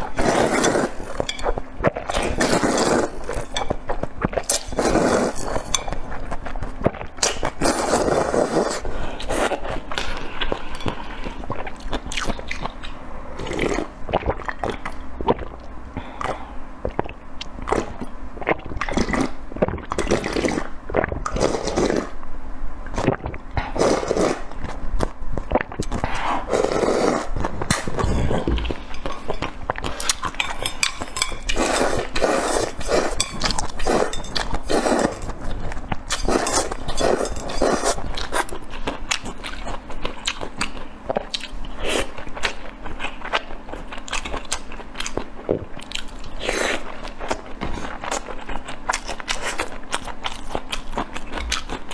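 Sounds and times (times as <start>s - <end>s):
wet chewing and mouth smacks: 48.0s - 51.9s.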